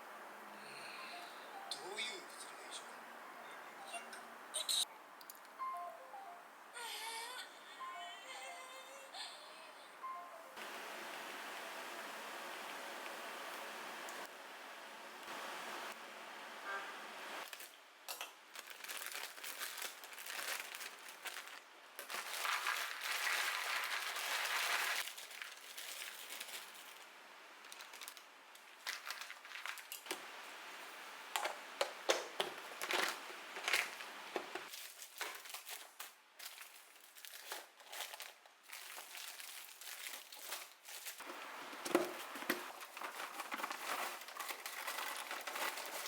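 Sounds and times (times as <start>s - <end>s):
plastic packaging crinkling: 17.4s - 17.8s, 18.5s - 46.0s.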